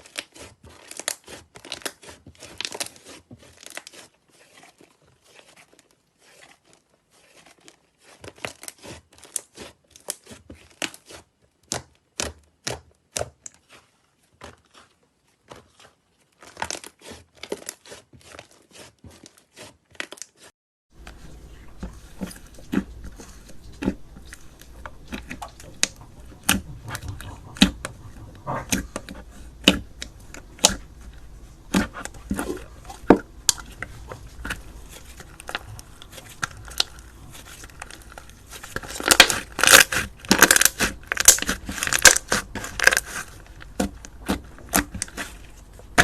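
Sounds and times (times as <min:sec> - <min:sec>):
low background hum: 0:21.0 - 0:46.0
slime crackling and popping: 0:28.7 - 0:46.0.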